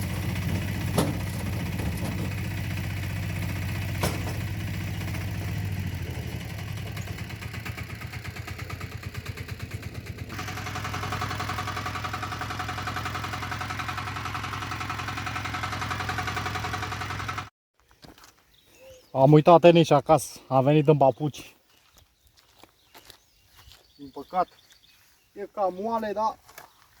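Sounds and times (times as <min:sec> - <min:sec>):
diesel tractor engine chugging: 0:00.0 - 0:17.5.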